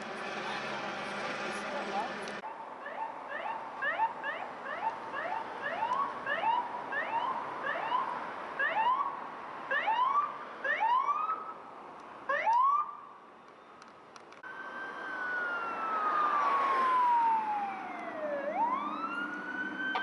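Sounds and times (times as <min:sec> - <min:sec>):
siren whooping: 0:14.4 - 0:20.0.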